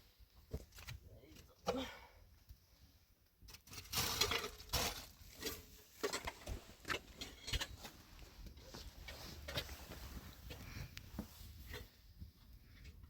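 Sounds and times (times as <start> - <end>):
objects knocking and clattering: 3.5 - 8.2.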